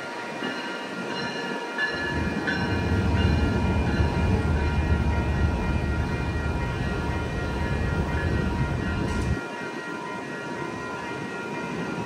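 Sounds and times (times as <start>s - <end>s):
passenger train rumble: 0.0s - 12.0s
steady high tones: 1.9s - 11.0s.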